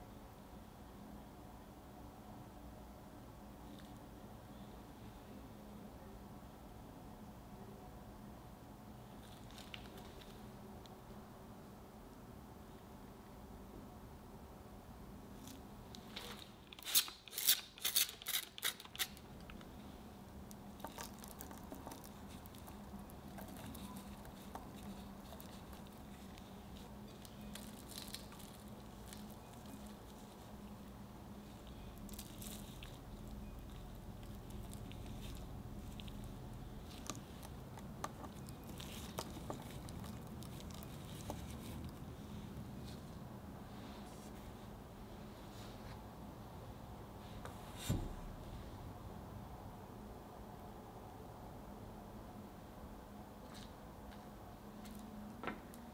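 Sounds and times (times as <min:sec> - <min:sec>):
crumbs rustling and crackling: 0:20.4 - 0:43.2.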